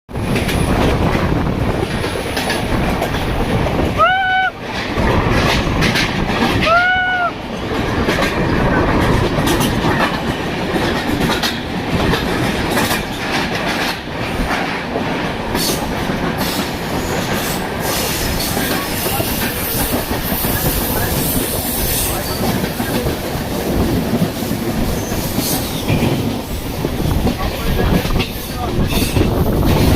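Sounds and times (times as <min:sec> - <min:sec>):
train rumbling along track: 0:00.1 - 0:29.9.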